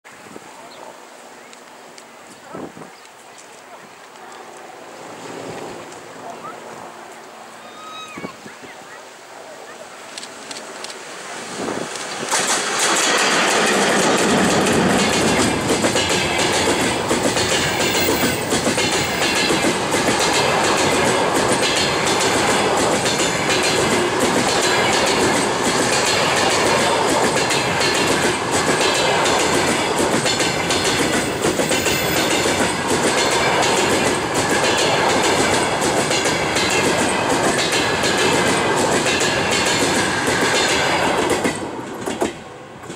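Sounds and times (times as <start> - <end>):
clickety-clack over rail joints: 10.1 - 42.9
train wheels rumbling on rail: 10.1 - 42.9.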